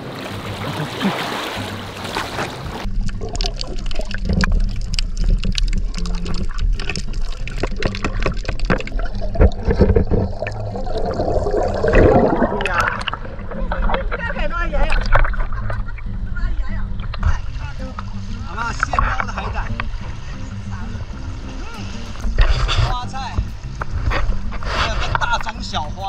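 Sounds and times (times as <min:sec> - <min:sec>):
seawater sloshing on rocks: 0:00.0 - 0:02.9
low rumble: 0:02.7 - 0:25.0.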